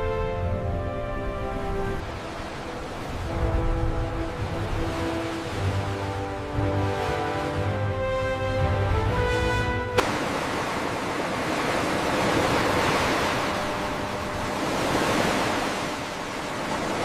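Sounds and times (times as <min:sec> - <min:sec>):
background music: 0:00.0 - 0:10.4
sea waves rushing: 0:00.0 - 0:17.0.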